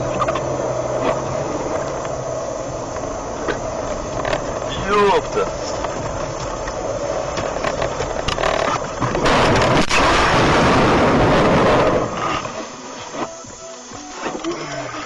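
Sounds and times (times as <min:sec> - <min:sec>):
car road noise: 0:00.0 - 0:15.0
loud rushing noise: 0:09.2 - 0:13.2.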